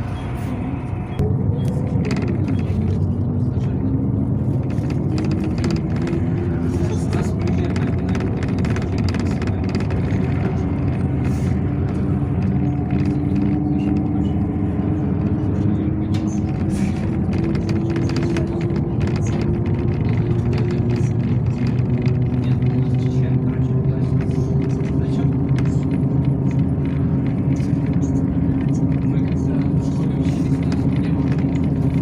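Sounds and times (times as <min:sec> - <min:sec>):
bus engine drone: 0:00.0 - 0:32.0
body rattles: 0:04.4 - 0:14.1.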